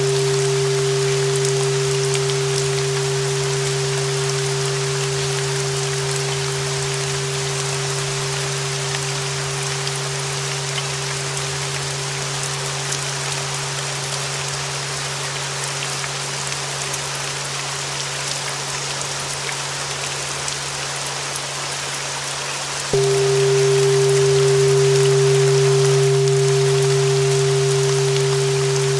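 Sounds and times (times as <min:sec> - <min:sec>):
low steady tone: 0:00.0 - 0:14.2, 0:23.0 - 0:28.9
steady rain: 0:00.0 - 0:28.9
bell ringing: 0:23.0 - 0:28.9.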